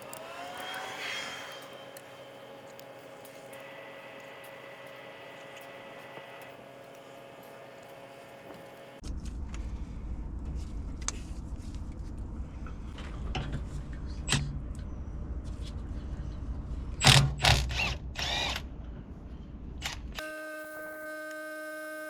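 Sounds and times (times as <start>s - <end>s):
electrical hum: 0.0s - 17.0s
steady low rumble: 9.0s - 19.9s.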